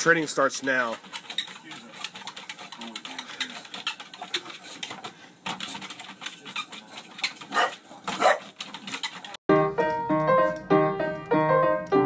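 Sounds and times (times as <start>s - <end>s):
small clicks and scuffs: 0.6s - 9.4s
piano music: 9.5s - 12.0s.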